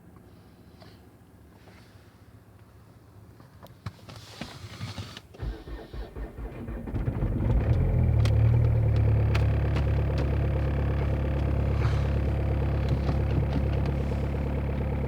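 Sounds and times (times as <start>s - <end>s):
car engine cranking and idling: 5.4s - 15.0s.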